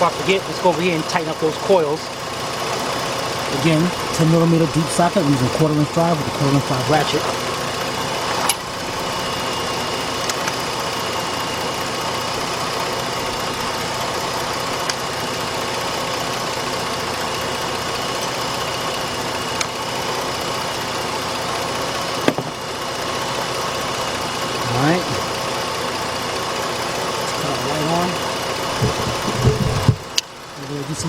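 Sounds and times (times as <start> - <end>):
car engine idling: 0.0 - 31.0
sharp clicks: 10.2 - 10.6, 29.9 - 30.3.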